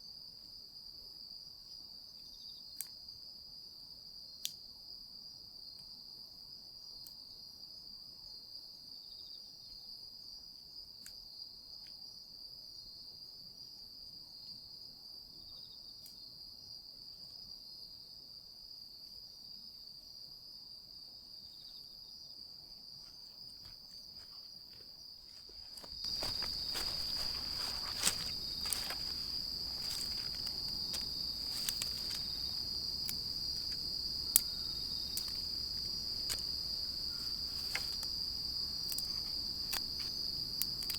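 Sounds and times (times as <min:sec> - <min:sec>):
insects trilling: 0:22.7 - 0:40.9
campfire crackling: 0:25.2 - 0:40.9.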